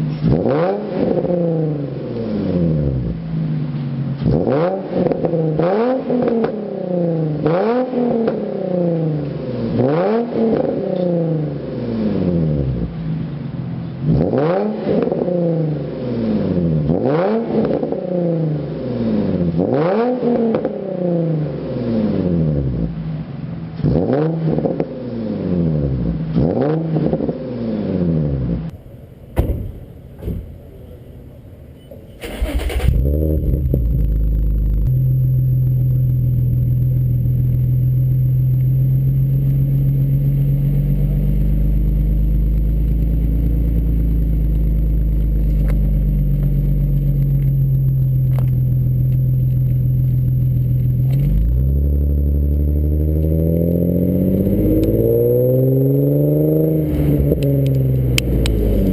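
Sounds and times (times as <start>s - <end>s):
car engine revving: 0.0s - 58.9s
car engine idling: 28.7s - 53.2s.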